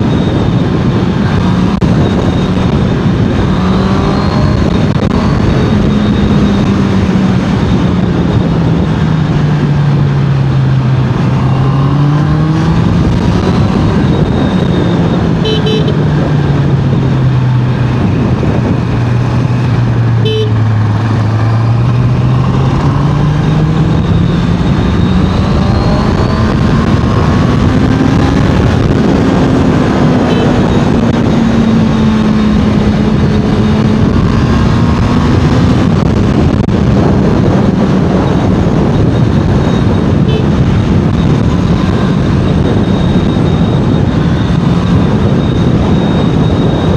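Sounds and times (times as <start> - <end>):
motorcycle engine and exhaust: 0.0 - 46.9
wind rush: 0.0 - 46.9
horn toots: 15.3 - 16.1, 20.2 - 20.7, 30.0 - 31.0, 40.2 - 40.7.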